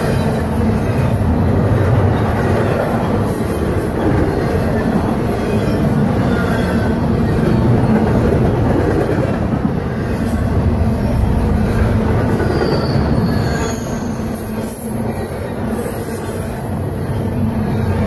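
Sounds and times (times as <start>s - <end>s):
train wheels rumbling on rails: 0.0s - 18.0s
faint wheel squeals: 12.2s - 17.8s.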